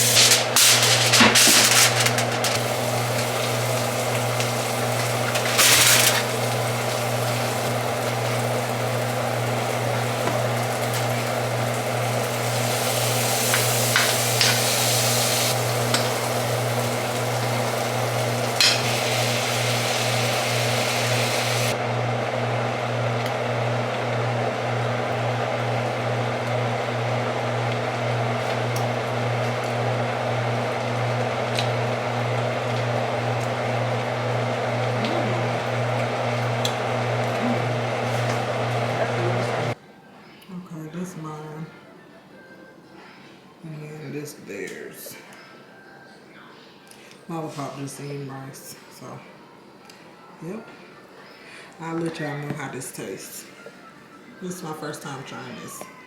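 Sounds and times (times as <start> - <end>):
food sizzling in a pan: 0.0 - 39.8.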